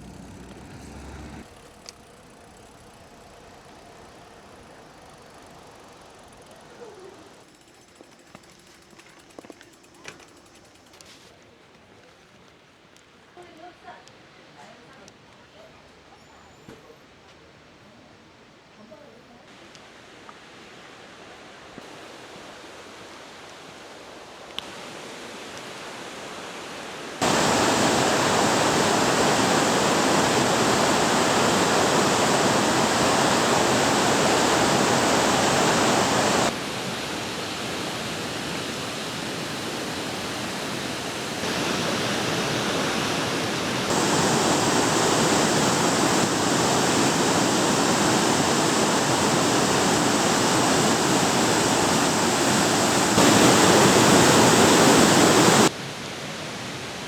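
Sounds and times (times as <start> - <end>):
waterfall rushing: 27.2 - 55.7.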